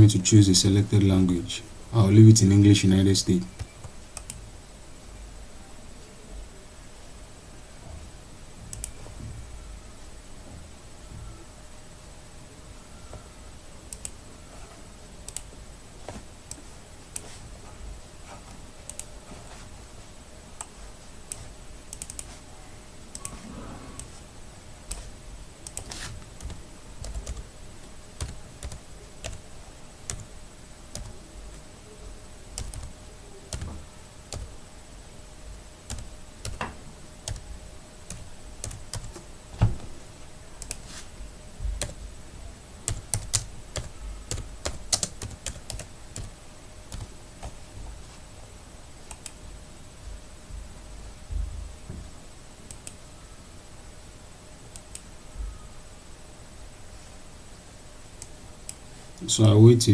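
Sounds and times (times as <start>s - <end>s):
faint steady hum: 0.0s - 59.9s
computer keyboard clicks: 3.6s - 4.4s, 8.7s - 9.0s, 18.9s - 19.1s, 21.3s - 22.4s, 32.6s - 32.9s, 42.9s - 46.3s, 52.7s - 53.0s
mouse clicks: 21.3s - 22.4s, 49.1s - 49.4s, 52.7s - 53.0s.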